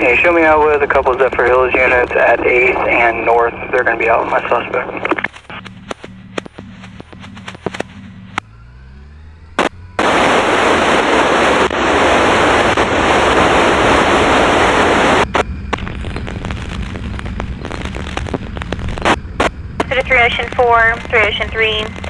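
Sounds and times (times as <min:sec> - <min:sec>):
radio static hiss: 0:00.0 - 0:08.4, 0:09.6 - 0:22.0
motorcycle engine: 0:05.3 - 0:13.5.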